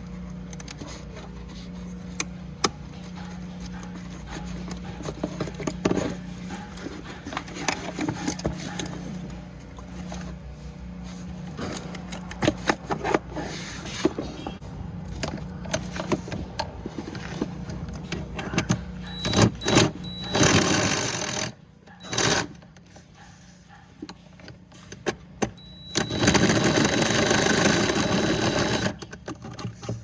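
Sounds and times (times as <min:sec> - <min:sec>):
small power tool whining: 0:25.6 - 0:29.1.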